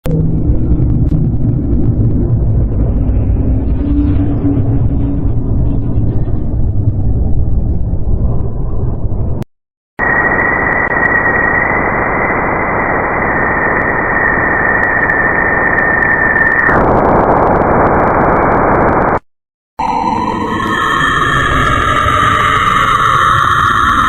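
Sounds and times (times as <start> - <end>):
steady high tone: 10.0 - 19.1, 19.8 - 24.0.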